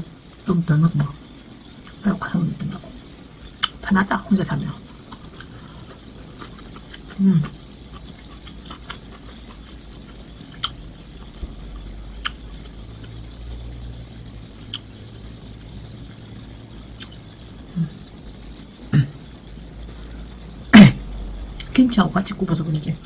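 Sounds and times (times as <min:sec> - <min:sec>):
low steady hum: 0:00.0 - 0:23.0
wet chewing: 0:04.8 - 0:13.2, 0:16.8 - 0:20.5.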